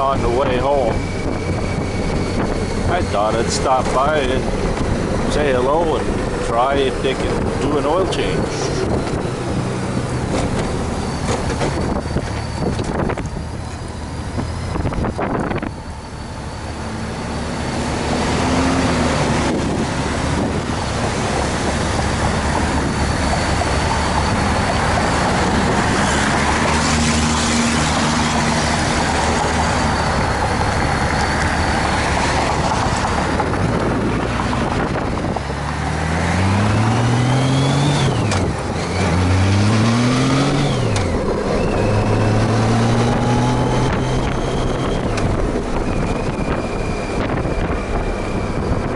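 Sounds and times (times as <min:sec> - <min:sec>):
wind rush: 0:00.0 - 0:48.9.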